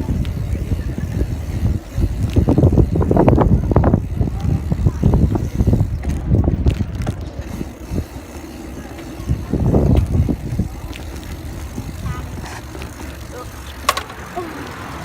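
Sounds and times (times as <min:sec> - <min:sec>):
wind buffeting microphone: 0:00.0 - 0:15.0
rattling thumps: 0:09.7 - 0:15.0.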